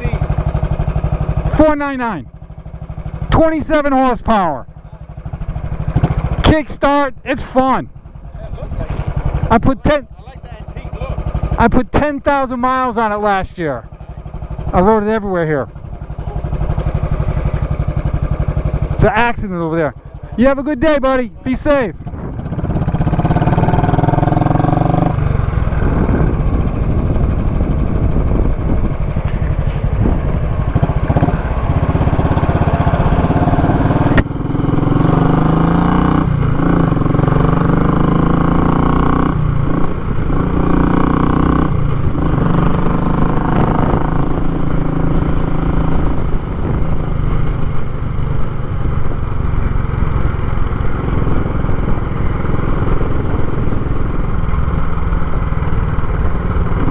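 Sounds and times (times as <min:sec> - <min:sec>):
motorcycle engine running loud: 0:00.0 - 0:56.9.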